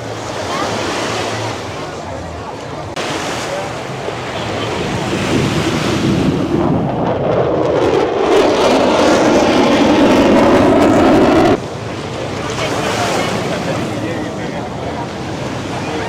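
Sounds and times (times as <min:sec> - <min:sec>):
surf breaking on beach: 0:02.9 - 0:16.0
wind buffeting microphone: 0:03.5 - 0:16.0.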